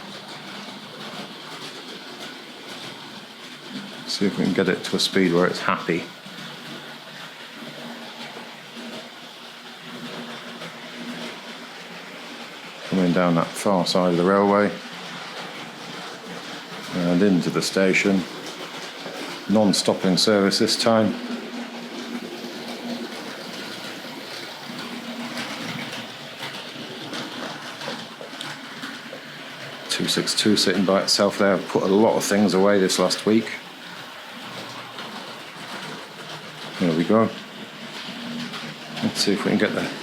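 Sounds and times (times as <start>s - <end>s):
model train motor whirring: 16.0s - 37.2s.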